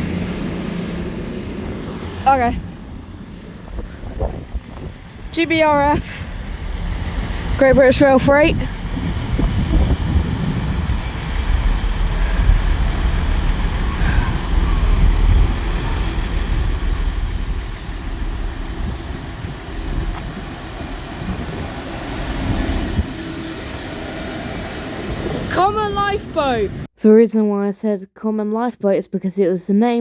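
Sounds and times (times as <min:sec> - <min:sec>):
freight train passing: 0:00.0 - 0:26.9.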